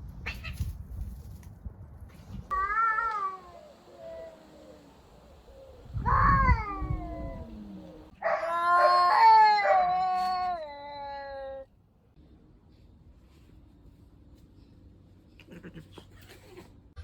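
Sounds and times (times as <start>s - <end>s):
cat yowling: 2.5s - 4.9s, 6.0s - 11.7s.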